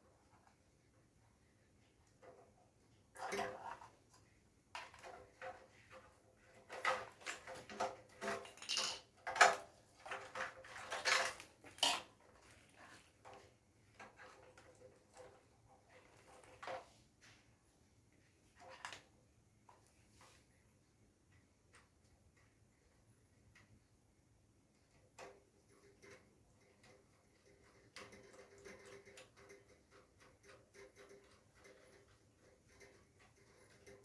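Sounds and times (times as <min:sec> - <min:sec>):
small parts and tools clinking: 0:06.7 - 0:12.2.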